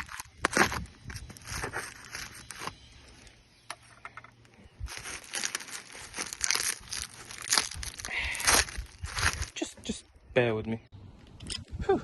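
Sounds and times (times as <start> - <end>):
packaging crinkling and rustling: 4.9 - 9.6.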